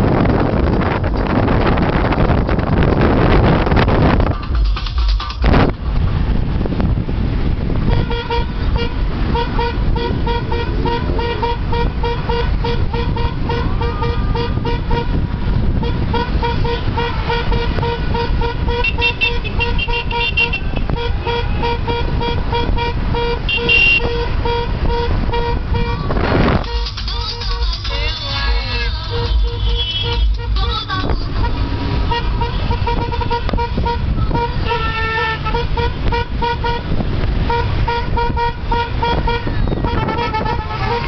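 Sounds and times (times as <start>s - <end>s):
motorcycle engine rumble: 0.0s - 41.0s
wind noise: 0.0s - 41.0s.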